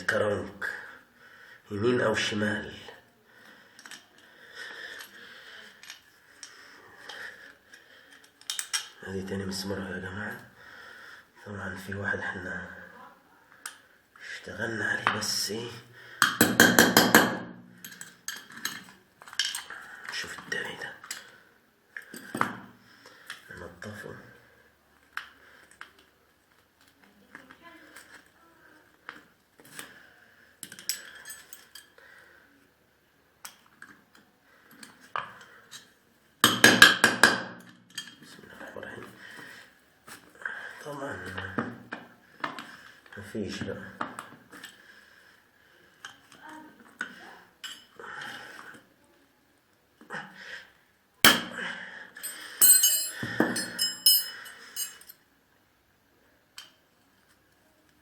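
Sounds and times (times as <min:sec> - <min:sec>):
metal tools clinking: 0:17.8 - 0:19.7, 0:30.7 - 0:31.9, 0:52.2 - 0:55.2
metal parts clinking: 0:52.2 - 0:55.2.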